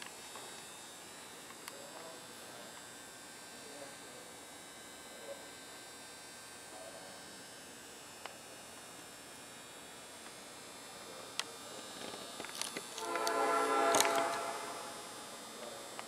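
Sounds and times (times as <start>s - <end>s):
faint hum and hiss: 0.0s - 16.0s
faint short sounds: 13.0s - 15.1s.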